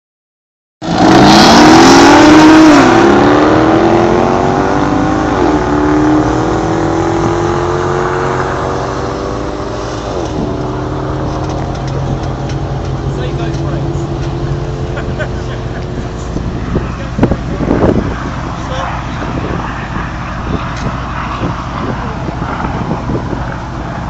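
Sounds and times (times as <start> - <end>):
sports car engine accelerating: 0.8 - 24.0.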